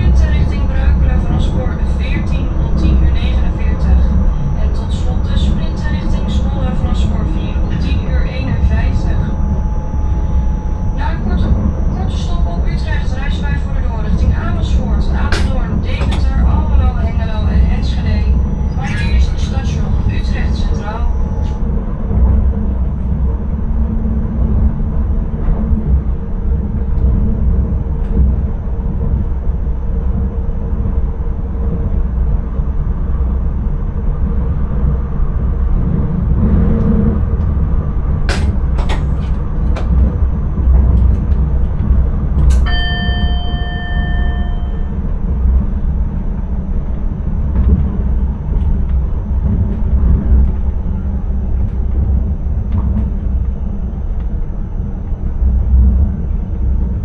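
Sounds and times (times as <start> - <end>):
train rumble: 0.0 - 57.0
ringing ding: 42.6 - 45.0.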